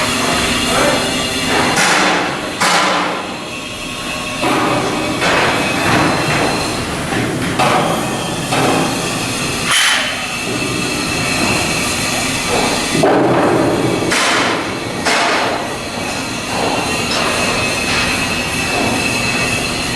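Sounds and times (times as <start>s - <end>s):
yard machinery din: 0.0s - 19.9s
hammer striking steel: 9.6s - 10.7s.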